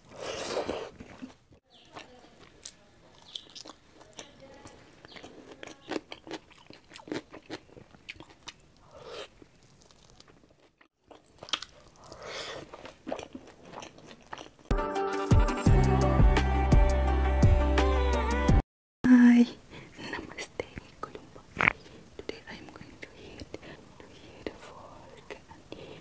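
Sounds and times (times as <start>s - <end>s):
wet chewing and crunchy bites: 0.0s - 14.7s
music: 14.7s - 18.6s.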